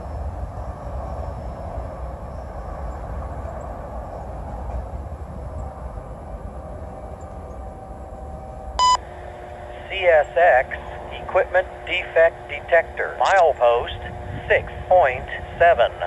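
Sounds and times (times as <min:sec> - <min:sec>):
freight train rumbling: 0:00.0 - 0:16.0
loud radio tone: 0:08.8 - 0:09.0, 0:09.7 - 0:16.0.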